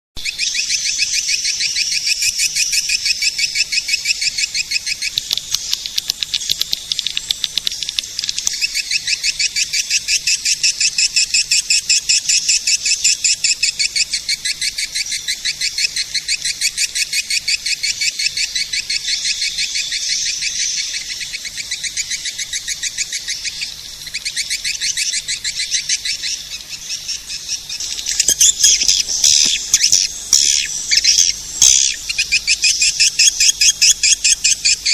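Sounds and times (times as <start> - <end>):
swiftlets chirping: 15.2 - 34.9.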